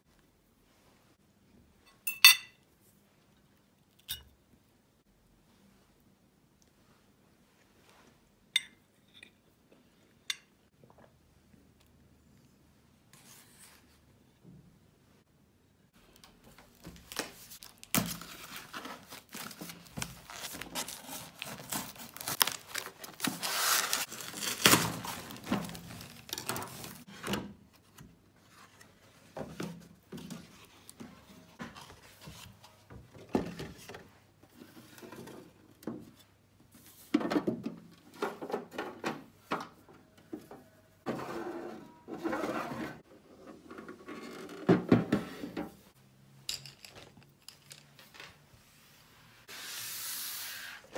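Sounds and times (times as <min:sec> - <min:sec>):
packaging crinkling and rustling: 0:16.5 - 0:27.1.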